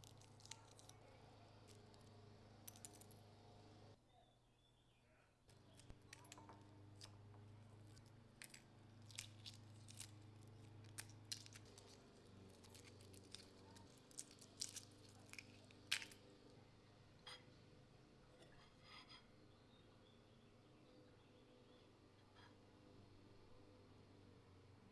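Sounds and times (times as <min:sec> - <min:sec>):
low steady hum: 0:00.0 - 0:04.0.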